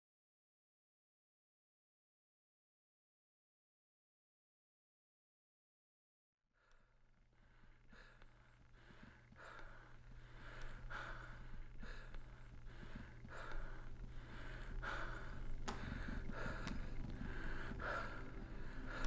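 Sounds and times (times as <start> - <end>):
man breathing heavily: 6.6 - 19.0
low hum: 6.7 - 19.0
sharp clicks: 10.5 - 18.3.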